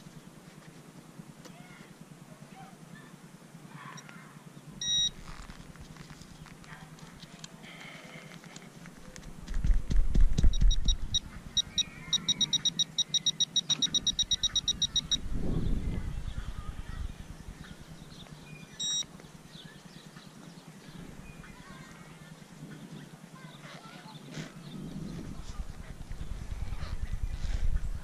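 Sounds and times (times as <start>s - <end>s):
pinpointer beeping rapidly: 4.8s - 5.2s, 10.4s - 15.2s, 18.8s - 19.1s
rustling in dirt: 4.9s - 12.3s, 15.2s - 28.0s
low thumps in dirt: 9.4s - 11.2s.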